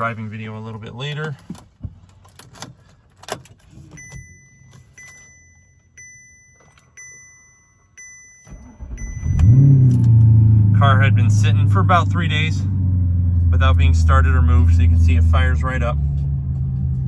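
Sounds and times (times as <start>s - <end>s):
dashboard warning chime: 3.8s - 11.3s
car engine cranking and starting: 8.4s - 17.0s
car engine idling: 8.5s - 17.0s.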